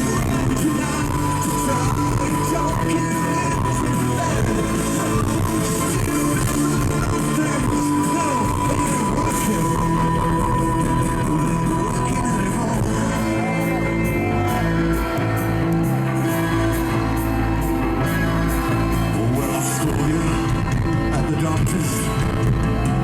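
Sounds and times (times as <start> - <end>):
live rock band playing: 0.0 - 23.0
person singing and shouting: 0.0 - 23.0.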